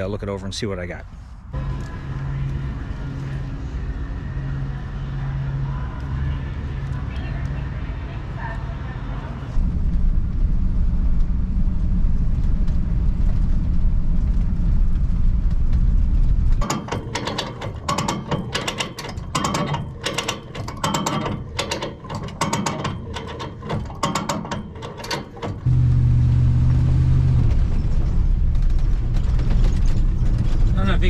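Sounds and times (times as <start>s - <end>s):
low rumble: 1.3s - 16.6s, 25.6s - 31.0s.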